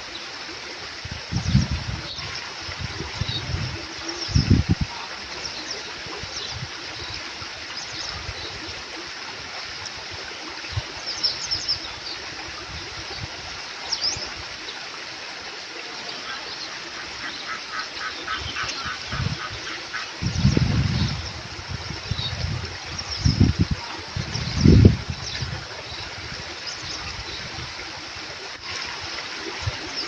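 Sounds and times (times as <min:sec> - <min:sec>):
small stream flowing: 0:00.0 - 0:30.0.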